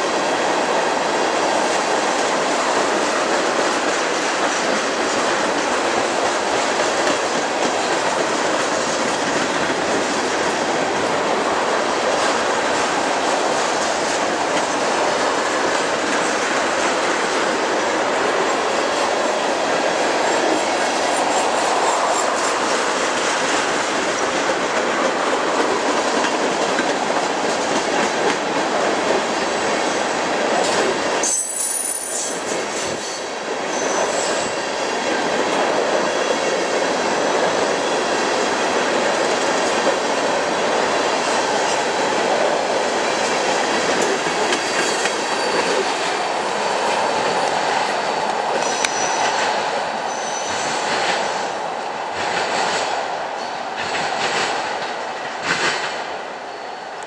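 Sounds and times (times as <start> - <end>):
train wheels rumbling: 0.0 - 57.0
wheel squeals: 48.6 - 49.4, 50.1 - 50.9.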